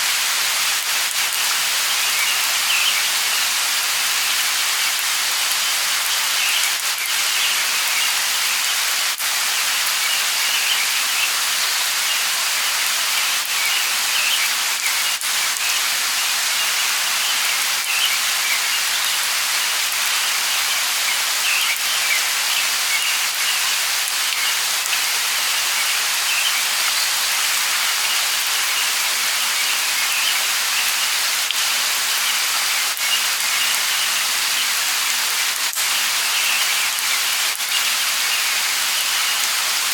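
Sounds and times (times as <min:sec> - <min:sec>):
light rain hissing: 0:00.0 - 0:39.9
bird chirps: 0:20.7 - 0:27.4.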